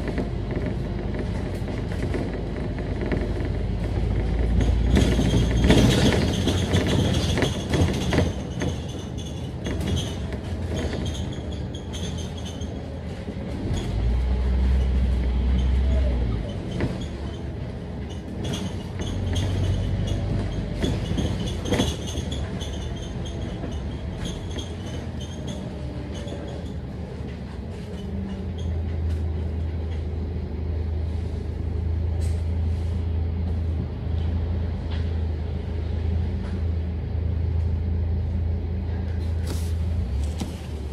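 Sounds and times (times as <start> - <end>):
bus body knocks and rattles: 0.0 - 30.2, 39.0 - 40.9
bus engine rumbling: 0.0 - 40.9.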